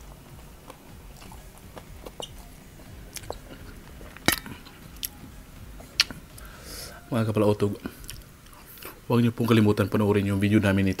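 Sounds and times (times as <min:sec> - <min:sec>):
person chewing noodles: 0:00.0 - 0:07.0, 0:07.8 - 0:09.0.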